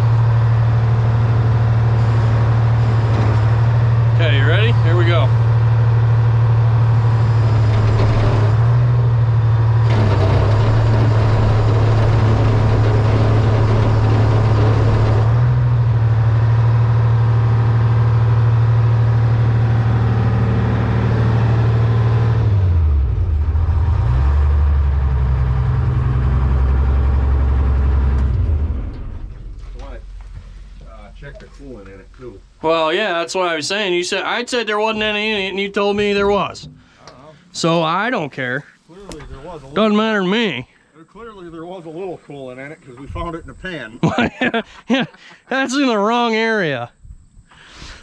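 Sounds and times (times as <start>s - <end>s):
diesel excavator engine running: 0.0s - 41.8s
harsh clatter and hiss: 9.8s - 15.6s.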